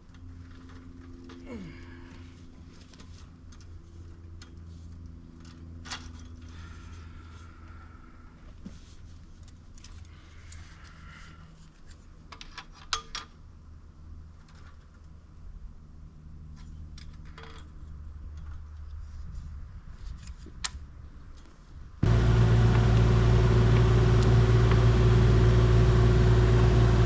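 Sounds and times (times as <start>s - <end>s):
low engine hum: 22.0s - 27.0s.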